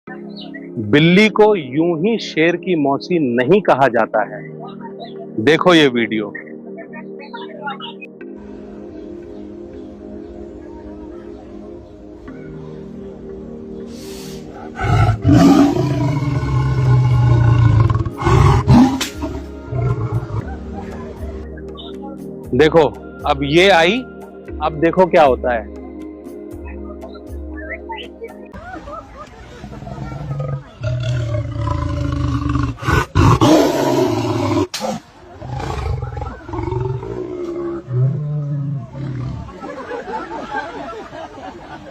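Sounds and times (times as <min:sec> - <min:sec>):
faint background music: 0:00.1 - 0:41.9
lion growling: 0:14.6 - 0:20.5, 0:29.6 - 0:39.6
lion roaring: 0:14.6 - 0:20.5, 0:29.7 - 0:39.6.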